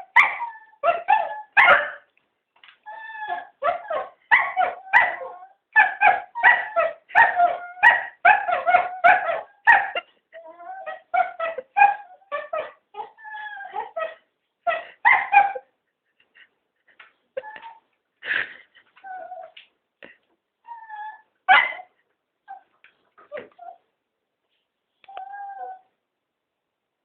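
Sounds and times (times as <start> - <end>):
dogs whining yipping and barking: 0.0 - 2.1, 2.8 - 15.8, 17.4 - 17.9, 19.0 - 19.6, 20.6 - 23.9, 25.1 - 25.9.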